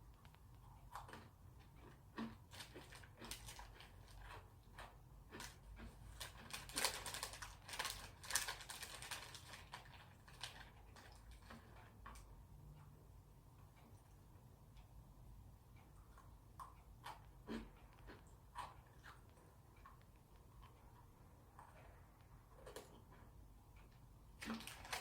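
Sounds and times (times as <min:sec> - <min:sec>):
biscuit sticks crunching: 0:00.9 - 0:11.6.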